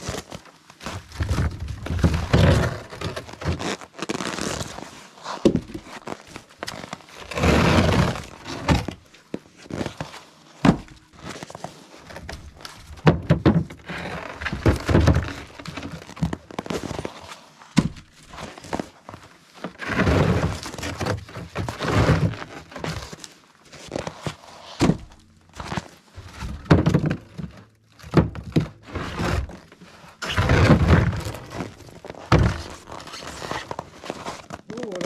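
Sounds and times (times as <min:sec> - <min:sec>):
logs scraping and sliding: 0:00.0 - 0:10.5, 0:18.3 - 0:27.6, 0:28.3 - 0:35.0
logs thunking on wood: 0:12.4 - 0:15.4, 0:26.3 - 0:27.5.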